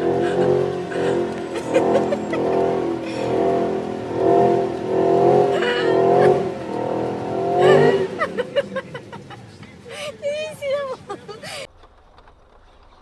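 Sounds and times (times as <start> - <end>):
car engine revving: 0.0 - 9.9.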